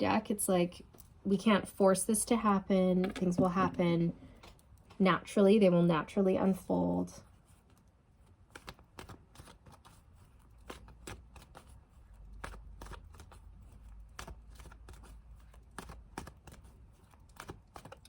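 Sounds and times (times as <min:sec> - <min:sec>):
cards being shuffled: 0:07.4 - 0:18.0.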